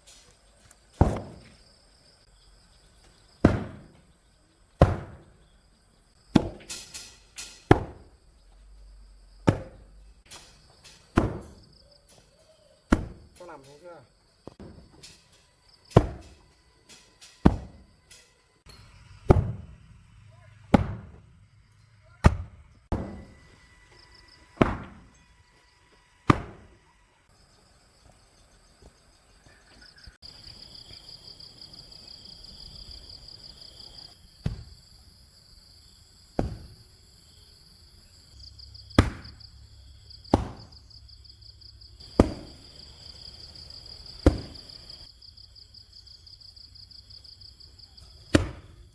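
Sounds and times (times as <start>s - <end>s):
hand tool striking ground: 0.0s - 1.6s, 6.3s - 8.2s, 9.4s - 19.6s, 22.2s - 23.6s, 24.4s - 25.4s, 26.3s - 26.8s, 40.3s - 40.8s, 42.0s - 42.6s, 44.2s - 44.7s
insects trilling: 0.0s - 48.9s.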